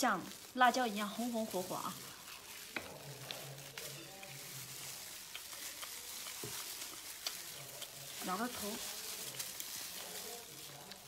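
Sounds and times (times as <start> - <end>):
person chewing meat: 2.0 - 8.2, 8.9 - 11.0.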